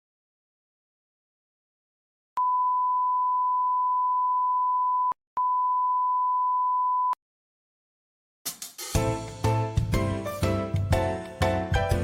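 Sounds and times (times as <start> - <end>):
electronic test tone beep: 2.4 - 7.2.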